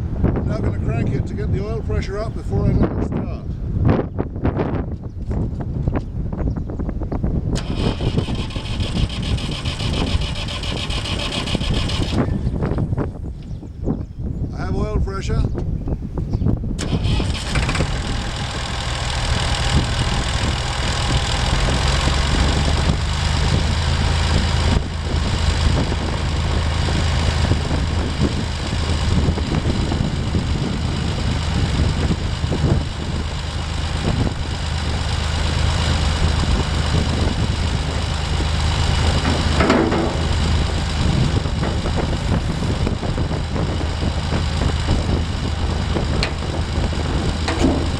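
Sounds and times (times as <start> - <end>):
tractor engine starting and idling: 7.4 - 13.3, 16.7 - 47.9.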